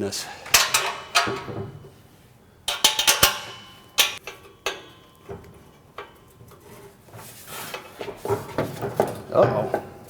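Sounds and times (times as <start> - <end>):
hand tools clinking on metal: 0.4 - 2.0, 2.7 - 6.8.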